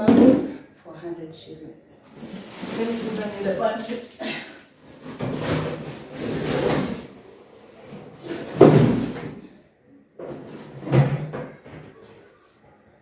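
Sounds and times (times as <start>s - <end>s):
cupboard doors and drawers: 4.9s - 9.4s, 10.2s - 12.2s.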